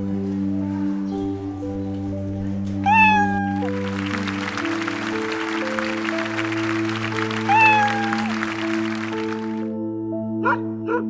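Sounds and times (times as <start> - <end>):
gentle background music: 0.0 - 11.0
cat meowing: 2.8 - 5.1, 7.4 - 8.6.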